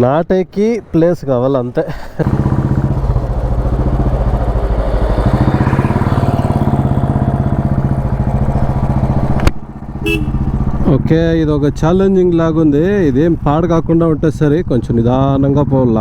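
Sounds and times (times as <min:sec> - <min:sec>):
motorcycle engine running: 0:02.2 - 0:13.8.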